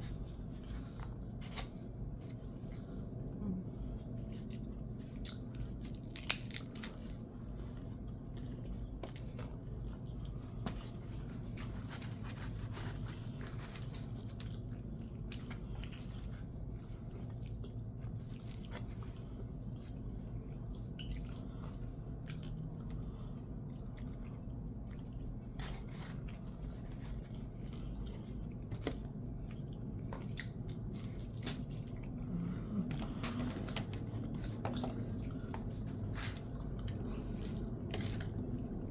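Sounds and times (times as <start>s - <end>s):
low hum: 0.0s - 38.9s
person chewing food: 0.0s - 38.9s.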